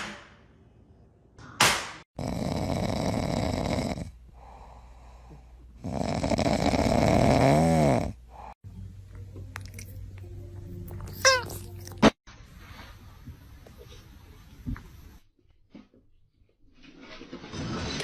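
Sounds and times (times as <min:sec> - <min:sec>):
loud snoring: 0:02.2 - 0:04.6, 0:05.8 - 0:08.5
snore whine: 0:02.2 - 0:05.0, 0:05.8 - 0:08.6.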